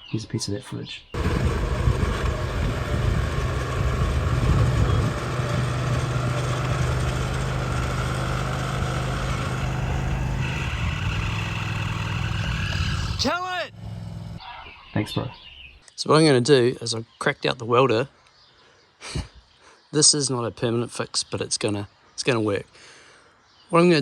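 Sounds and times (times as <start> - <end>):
high whine: 1.2 - 13.5
mower engine running under load: 1.2 - 14.4.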